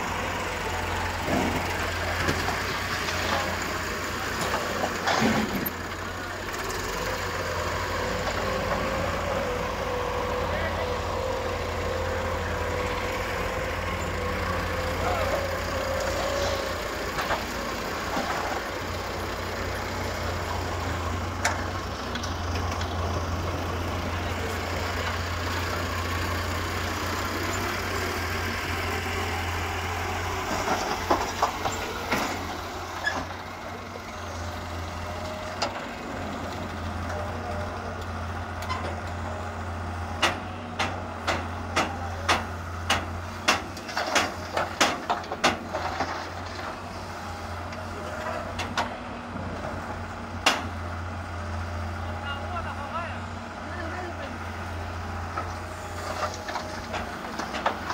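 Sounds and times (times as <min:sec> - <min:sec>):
excavator diesel engine: 0:00.0 - 0:57.9
clanks and knocks: 0:40.2 - 0:46.8, 0:55.3 - 0:57.9.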